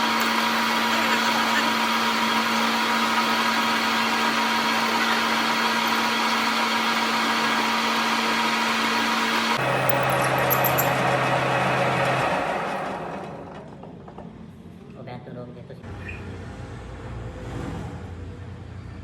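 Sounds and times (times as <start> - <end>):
workshop machine humming and whirring: 0.0 - 14.9.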